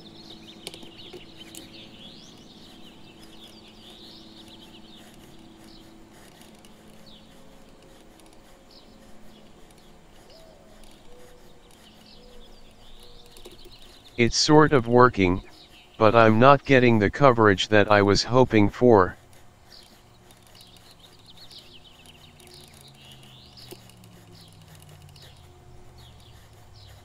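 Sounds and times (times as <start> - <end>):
low steady hum: 0.0 - 27.0
small birds chirping: 0.0 - 27.0.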